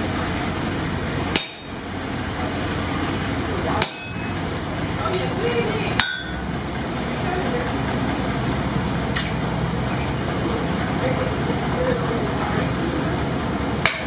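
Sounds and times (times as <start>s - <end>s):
sledgehammer striking metal punch: 1.3s - 1.8s, 3.8s - 4.4s, 6.0s - 6.5s.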